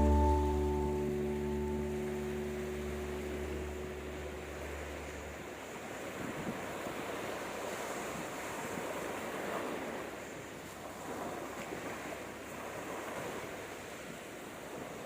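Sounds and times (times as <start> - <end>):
sea waves washing onto beach: 0.0 - 15.0
wind on microphone: 4.3 - 10.1.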